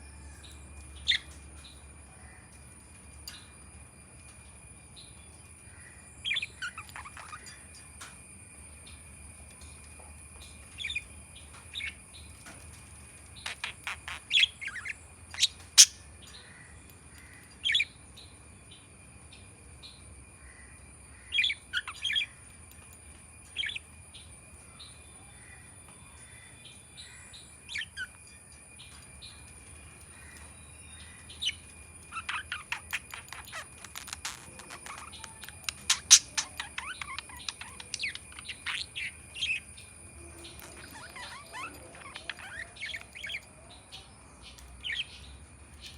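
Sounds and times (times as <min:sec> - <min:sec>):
budgerigar chirping: 0:13.5 - 0:16.0, 0:31.4 - 0:39.8, 0:40.6 - 0:43.4.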